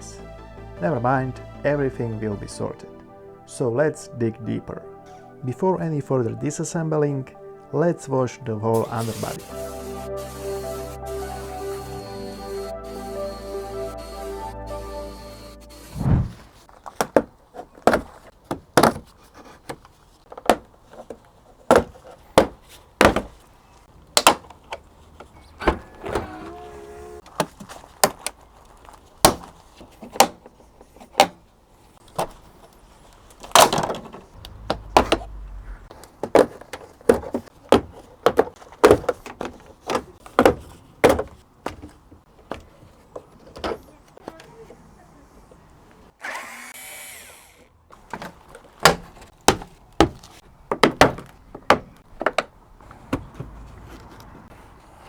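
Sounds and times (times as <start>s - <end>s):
short low rumble: 16.0s - 16.6s
sharp knocks and clicks: 48.0s - 53.6s.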